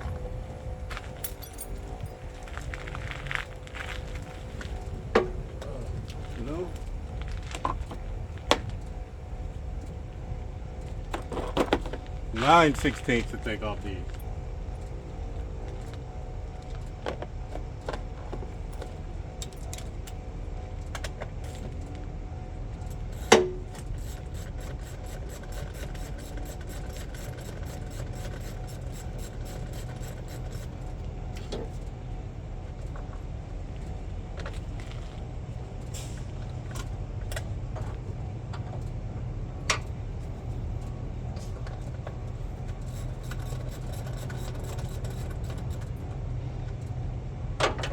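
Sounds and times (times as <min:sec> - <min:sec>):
low rumble: 0:00.0 - 0:16.8.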